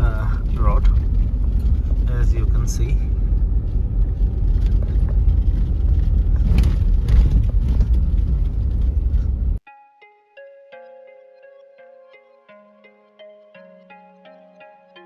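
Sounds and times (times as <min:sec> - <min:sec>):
vehicle engine and tyres rumbling: 0:00.0 - 0:09.6.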